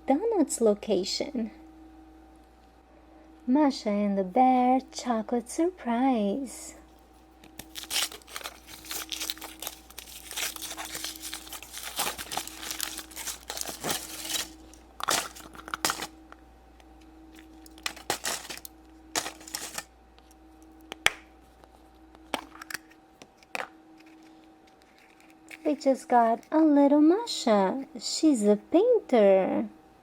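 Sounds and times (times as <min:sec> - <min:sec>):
foil wrapper crinkling: 0:07.4 - 0:16.4, 0:17.3 - 0:19.9, 0:21.4 - 0:26.5.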